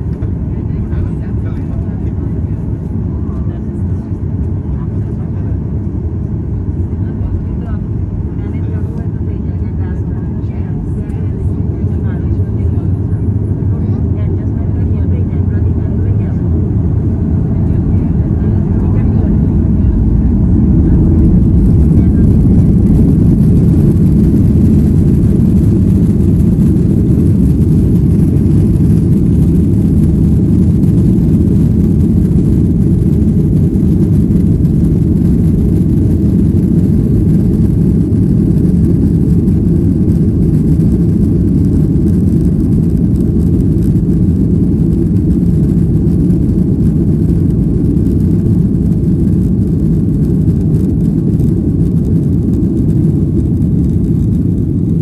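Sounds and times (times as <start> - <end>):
jet engines rumbling: 0.0 - 55.0
rushing air: 18.7 - 51.4.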